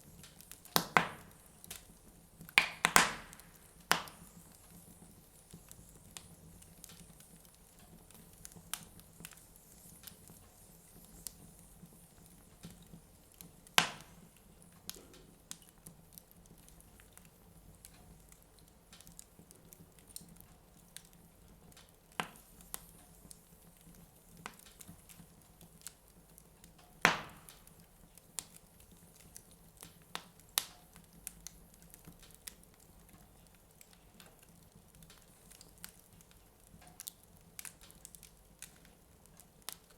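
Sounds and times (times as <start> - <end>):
wood fire crackling: 0.0 - 39.9
loud fire pops: 0.2 - 9.4, 13.6 - 15.6, 27.0 - 27.8.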